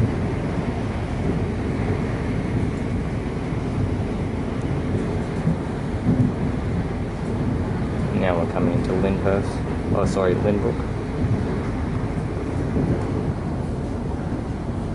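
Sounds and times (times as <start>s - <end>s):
train wheels rumbling on track: 0.0s - 14.9s.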